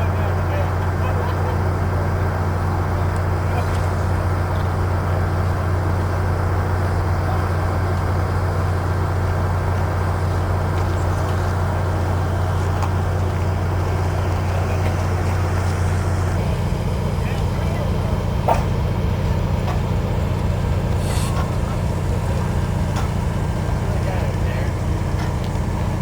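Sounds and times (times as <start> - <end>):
low mechanical drone: 0.0 - 26.0.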